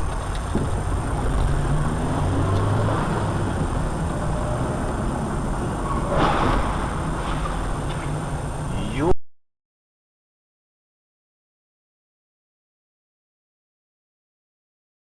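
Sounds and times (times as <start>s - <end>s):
car engine and road noise: 0.0s - 9.1s.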